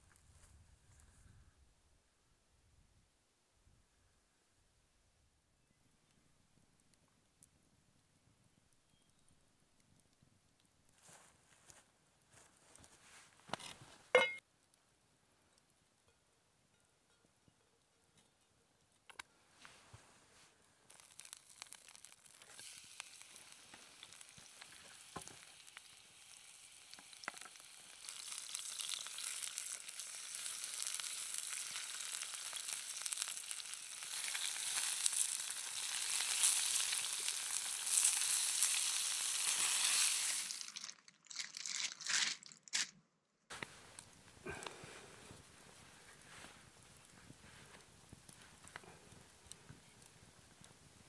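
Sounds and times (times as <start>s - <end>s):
chicken sizzling in oil: 20.9s - 41.4s.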